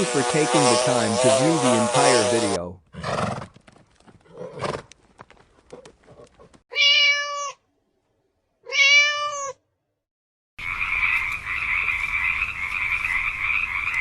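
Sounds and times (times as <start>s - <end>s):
cat meowing: 6.7s - 7.6s, 8.6s - 9.6s.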